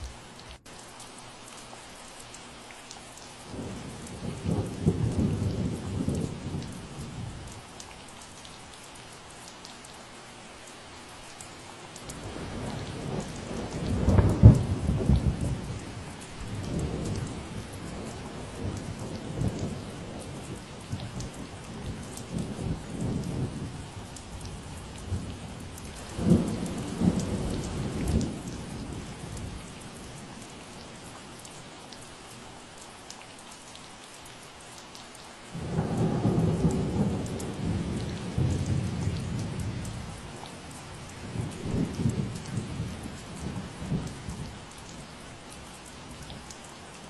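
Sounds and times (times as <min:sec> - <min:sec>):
steady rain falling: 0:00.0 - 0:47.0
thunder rumbling: 0:03.5 - 0:07.4, 0:12.1 - 0:30.2, 0:35.6 - 0:44.6.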